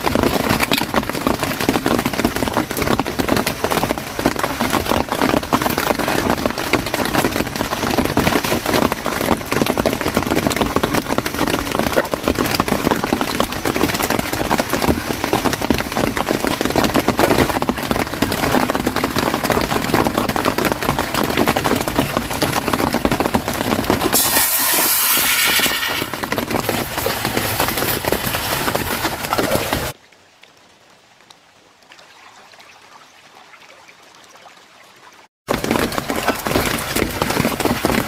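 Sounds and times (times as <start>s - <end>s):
heavy rain on a tent: 0.0s - 32.0s, 35.4s - 38.0s
meat sizzling in hot oil: 24.2s - 26.1s.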